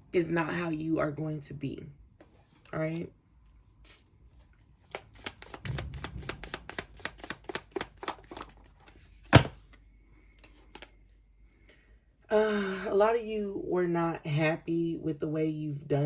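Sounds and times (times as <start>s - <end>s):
cards being shuffled: 4.8s - 9.6s.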